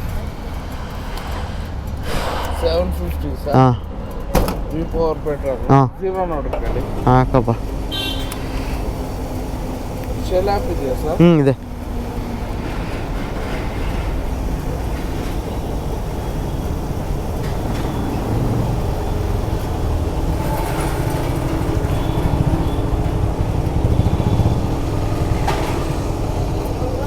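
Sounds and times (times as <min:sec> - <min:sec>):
road and wind noise: 0:00.0 - 0:27.0
motorcycle engine running: 0:14.6 - 0:27.0.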